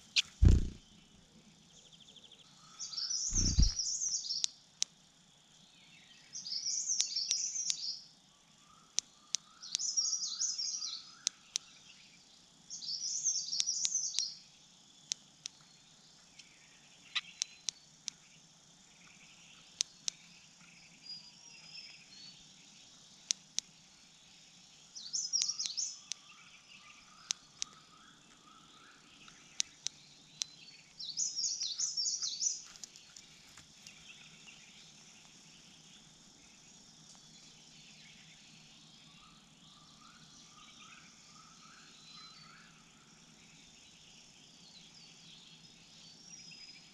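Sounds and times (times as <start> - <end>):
sharp ticks: 0.0 - 0.8, 3.3 - 3.8
small bird warbling: 0.0 - 0.8, 3.3 - 3.9
faint low chirping: 0.0 - 46.9.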